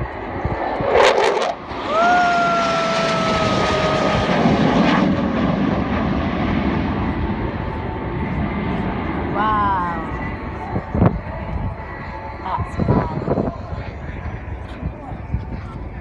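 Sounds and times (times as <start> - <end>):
jet roaring past: 0.0 - 16.0.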